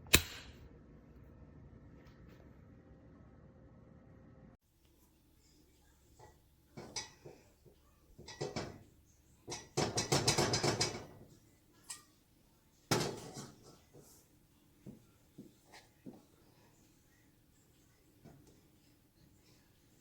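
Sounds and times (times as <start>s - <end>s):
metal kitchenware clattering: 6.2s - 7.5s, 8.2s - 8.9s, 9.5s - 11.2s, 12.9s - 13.9s.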